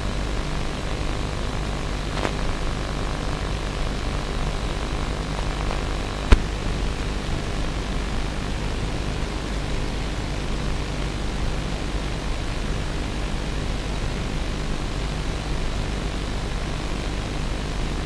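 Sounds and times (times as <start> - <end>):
sharp click: 6.2 - 6.5.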